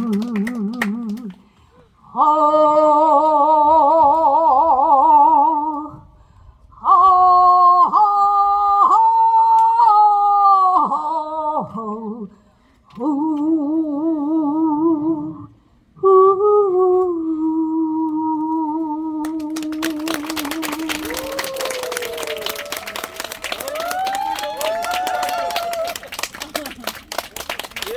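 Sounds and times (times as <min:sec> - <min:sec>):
wordless singing with vibrato: 0:00.0 - 0:22.1
singer breathing: 0:01.4 - 0:02.1, 0:06.0 - 0:06.8, 0:12.3 - 0:12.9, 0:15.5 - 0:16.0.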